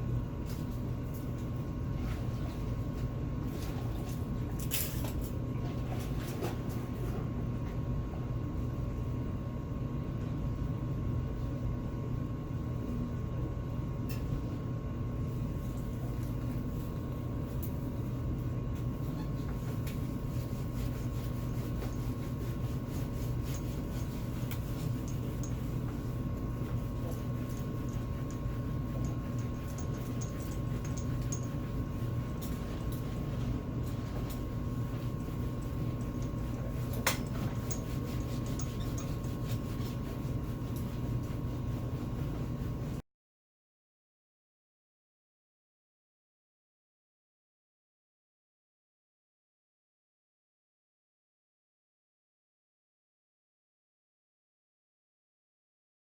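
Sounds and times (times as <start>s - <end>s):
steady mechanical hum: 0.0s - 43.0s.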